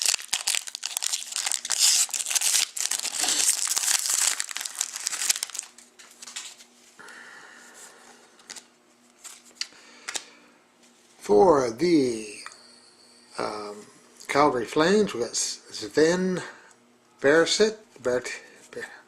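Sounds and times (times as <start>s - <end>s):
wrapper tearing and crinkling: 0.0s - 6.6s
cards rustling: 0.0s - 6.7s.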